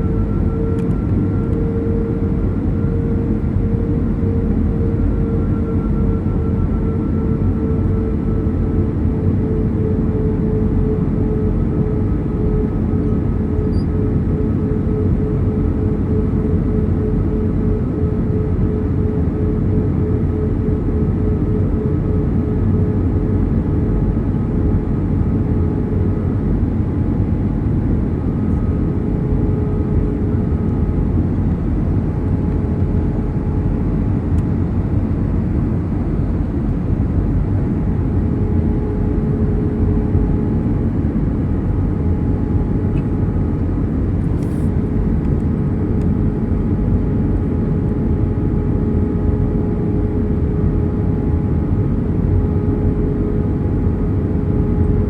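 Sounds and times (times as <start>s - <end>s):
faint steady hum tones: 0.0s - 55.0s.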